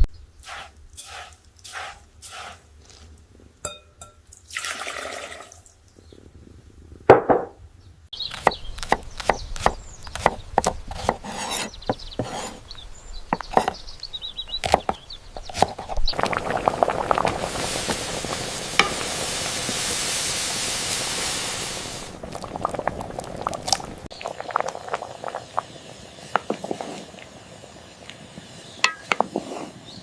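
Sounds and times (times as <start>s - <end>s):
short watery hiss: 0.4s - 3.2s, 15.9s - 30.0s
knife chopping on wooden board: 8.4s - 12.6s.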